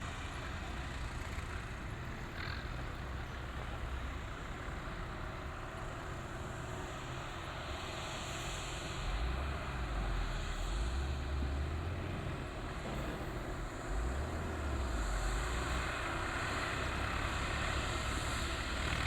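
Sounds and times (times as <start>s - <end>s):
tractor diesel engine running: 0.0s - 8.9s.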